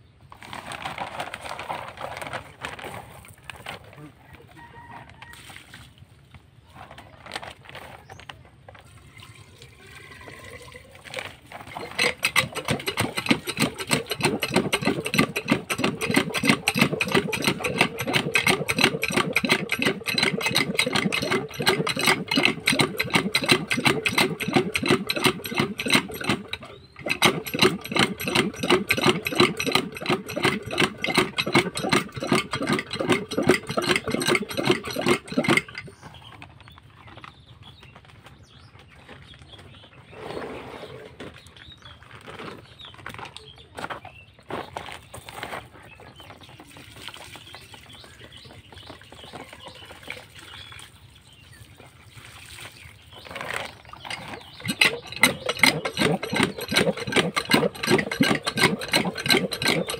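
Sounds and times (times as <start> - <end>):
diesel pump engine knocking: 11.7 - 36.0, 53.9 - 59.9.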